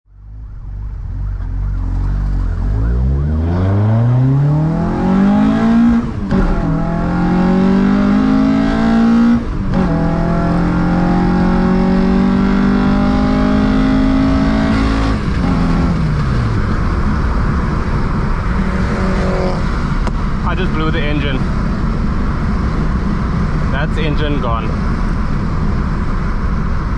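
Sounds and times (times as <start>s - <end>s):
car engine accelerating hard: 0.7s - 26.9s
steady rushing noise: 15.0s - 26.9s.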